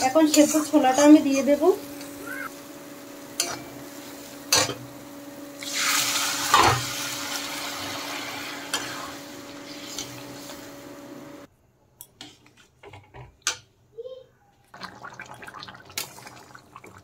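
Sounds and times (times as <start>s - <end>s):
chickpeas sizzling in hot oil: 0.0s - 11.5s.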